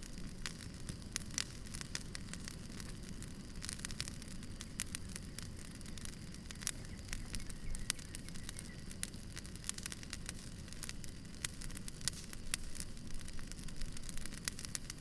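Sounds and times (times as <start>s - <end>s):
campfire flame rushing: 0.0s - 15.0s
wood crackling and popping: 0.0s - 15.0s.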